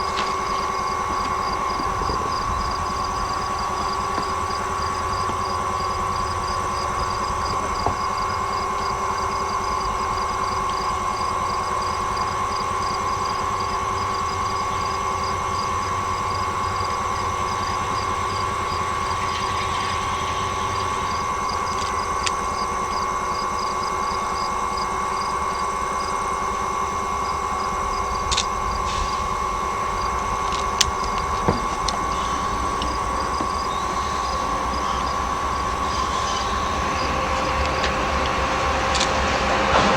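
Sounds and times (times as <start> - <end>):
mechanical hum: 0.0 - 39.9
sharp clicks: 28.1 - 29.3, 30.0 - 39.3.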